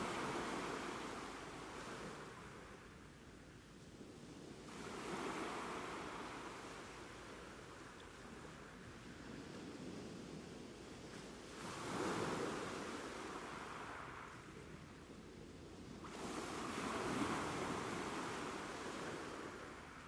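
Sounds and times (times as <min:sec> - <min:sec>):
ocean waves breaking: 0:00.0 - 0:02.8.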